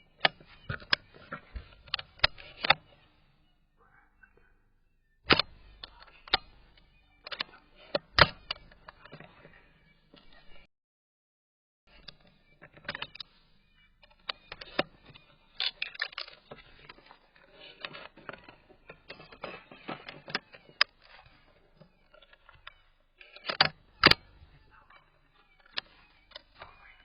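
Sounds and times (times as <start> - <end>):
mechanical clicking and rattling: 14.0 - 24.5.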